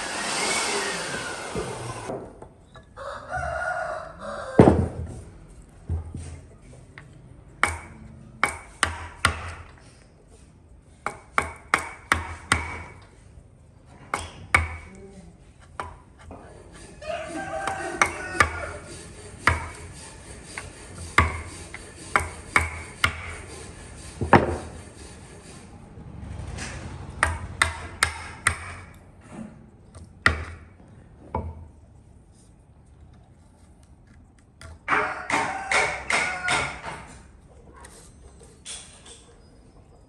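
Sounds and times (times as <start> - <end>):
hammer striking metal: 7.6 - 9.7, 11.0 - 13.0, 22.1 - 23.4, 27.2 - 29.0, 34.9 - 37.1.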